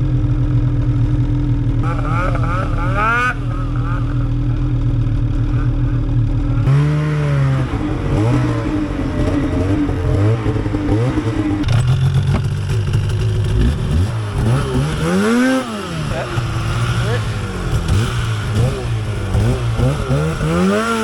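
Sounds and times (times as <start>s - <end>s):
snowmobile engines revving: 1.8s - 21.0s.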